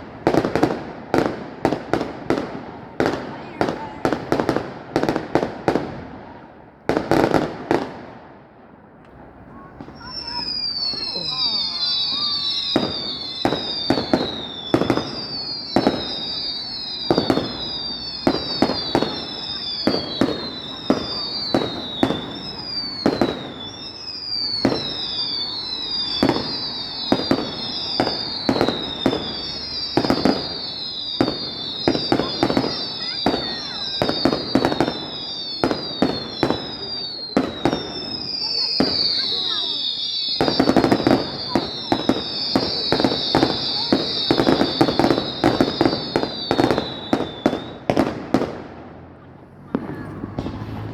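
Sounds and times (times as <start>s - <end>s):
fireworks bangs: 0.0s - 50.9s
fireworks whistles falling in pitch: 9.5s - 48.6s.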